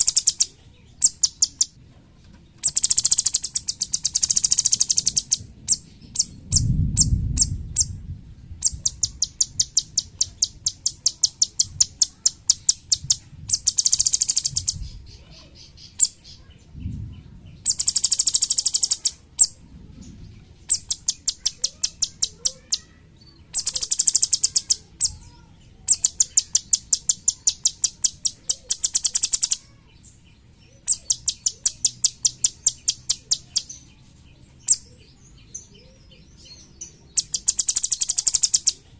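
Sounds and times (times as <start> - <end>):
bird singing rapid high notes: 0.0 - 1.8, 2.6 - 8.0, 8.6 - 15.1, 17.6 - 19.6, 20.7 - 34.0, 34.6 - 38.9
low rumble: 5.3 - 10.2, 16.5 - 17.7, 19.2 - 20.7.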